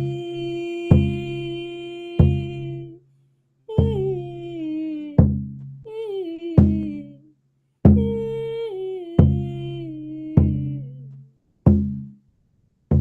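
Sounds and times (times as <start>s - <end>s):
person singing wordless phrases: 0.0s - 3.0s, 3.7s - 7.3s, 7.9s - 11.2s
struck or strummed instrument: 0.0s - 3.0s, 9.2s - 12.2s.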